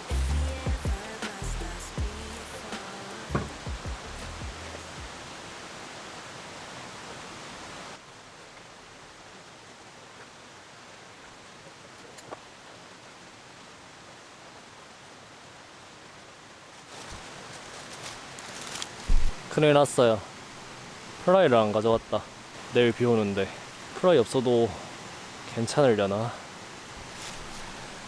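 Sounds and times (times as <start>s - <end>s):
steady outdoor hiss: 0.0s - 28.0s.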